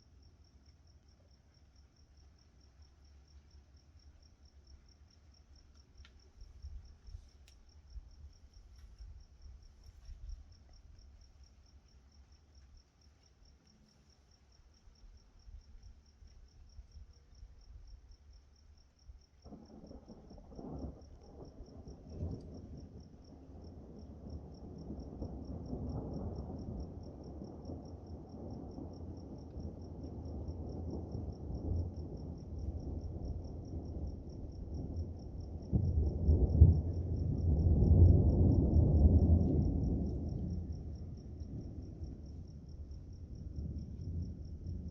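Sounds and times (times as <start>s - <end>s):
crickets trilling: 0.1s - 44.9s
rolling thunder: 19.4s - 44.9s.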